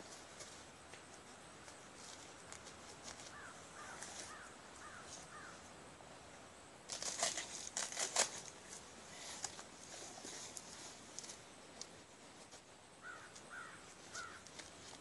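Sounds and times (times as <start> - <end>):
bird calling: 3.2 - 5.6, 13.0 - 14.7
crunching and clattering: 6.9 - 12.6.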